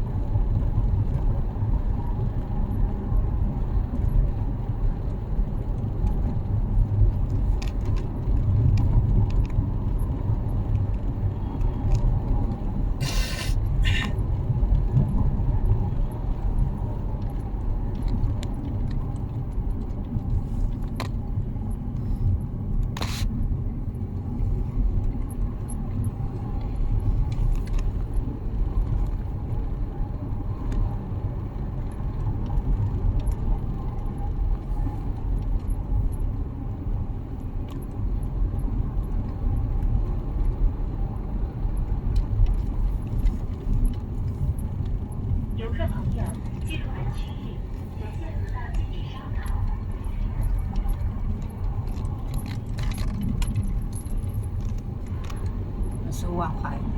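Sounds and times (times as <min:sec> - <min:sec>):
car road and engine noise: 0:00.0 - 0:56.9.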